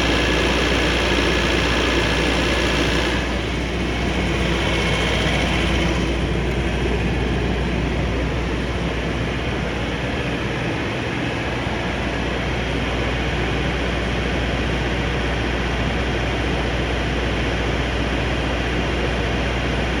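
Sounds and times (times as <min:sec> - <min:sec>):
diesel generator running: 0:00.0 - 0:20.0.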